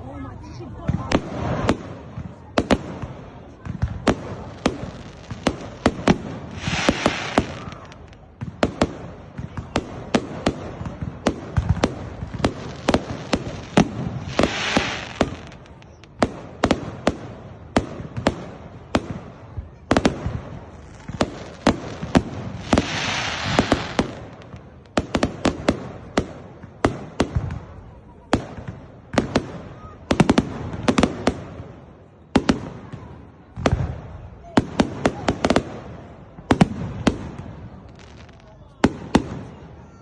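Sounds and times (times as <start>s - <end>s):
fireworks bangs: 0.8s - 40.0s
fireworks hissing crackle: 4.0s - 9.0s, 11.3s - 17.0s, 20.6s - 26.2s.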